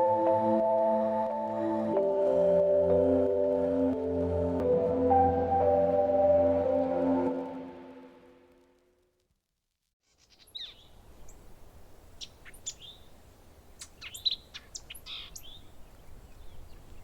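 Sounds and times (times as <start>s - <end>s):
faint steady hiss: 10.0s - 17.0s
small birds chirping: 10.1s - 11.5s, 12.1s - 17.0s.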